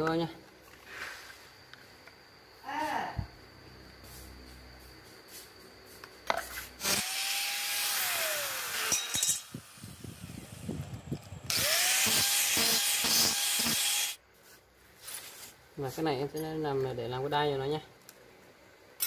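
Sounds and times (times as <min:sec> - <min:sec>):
power tool whining and cutting: 0:06.8 - 0:14.2.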